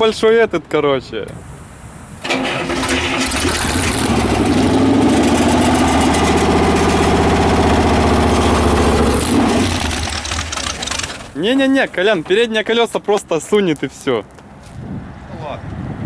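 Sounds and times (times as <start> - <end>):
car engine revving: 2.4 - 11.4.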